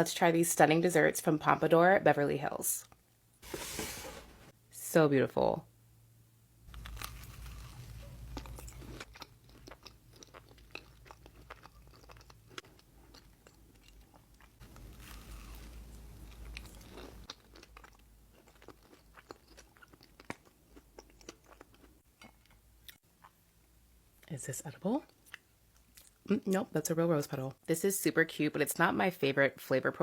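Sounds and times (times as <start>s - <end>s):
person chewing crisp pastry: 6.7s - 23.4s.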